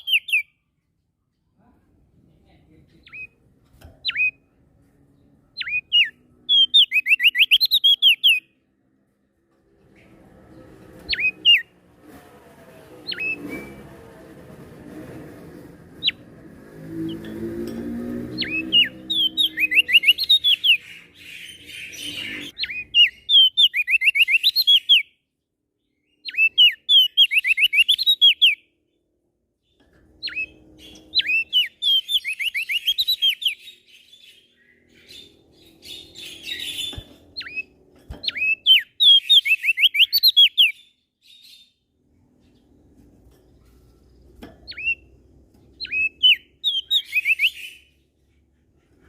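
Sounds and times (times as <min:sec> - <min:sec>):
songbird singing sharp chirps: 0:00.0 - 0:00.7, 0:02.8 - 0:08.6, 0:09.8 - 0:11.7, 0:13.0 - 0:13.9, 0:18.0 - 0:28.8, 0:30.2 - 0:42.8, 0:43.6 - 0:48.2.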